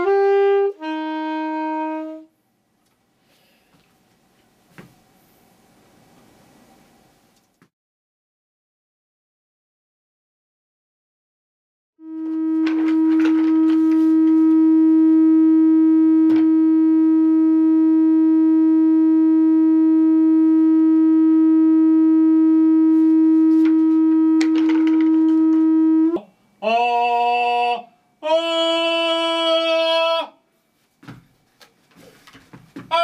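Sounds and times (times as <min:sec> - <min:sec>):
saxophone notes: 0:00.0 - 0:02.3, 0:12.0 - 0:27.5.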